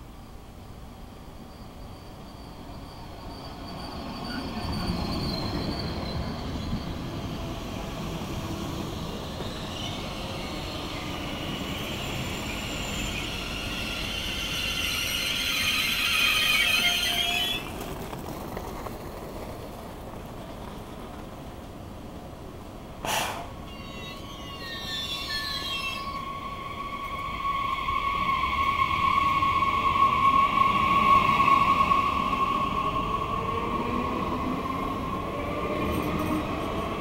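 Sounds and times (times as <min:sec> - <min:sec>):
train brakes squealing: 0:00.6 - 0:17.7, 0:23.0 - 0:33.8
train wheels rumbling on rails: 0:01.0 - 0:37.0.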